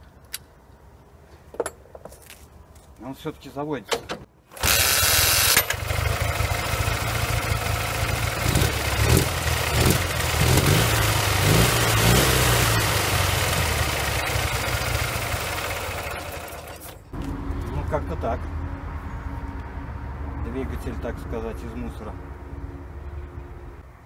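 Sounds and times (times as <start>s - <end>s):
motorcycle engine revving: 4.6s - 16.9s.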